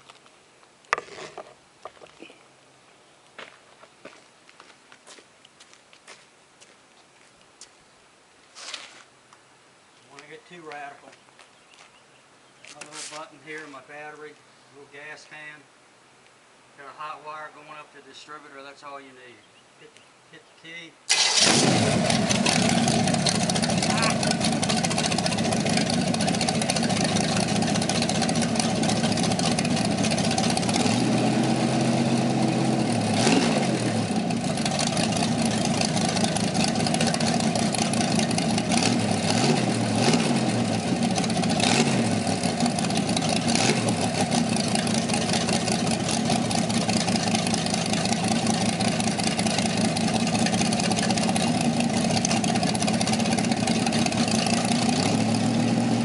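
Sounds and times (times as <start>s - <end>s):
engine idling with throttle blips: 21.1s - 56.0s.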